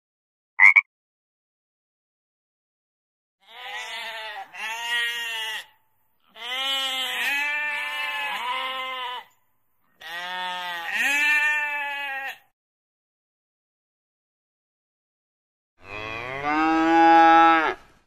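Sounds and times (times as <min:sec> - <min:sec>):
sheep bleating: 0:03.4 - 0:09.4, 0:10.0 - 0:12.5.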